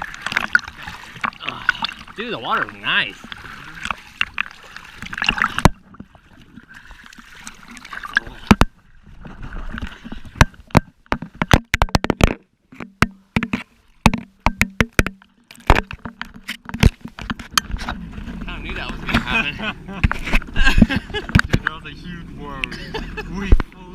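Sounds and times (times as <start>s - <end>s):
water rushing and splashing: 0.0s - 12.0s, 13.9s - 23.9s
jet ski engine hum: 17.8s - 23.9s.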